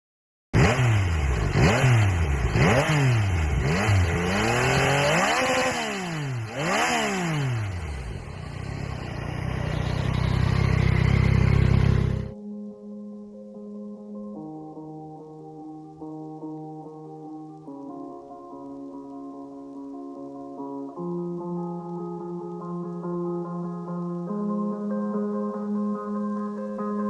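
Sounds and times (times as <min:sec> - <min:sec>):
motorcycle engine revving and idling: 0:00.6 - 0:12.4.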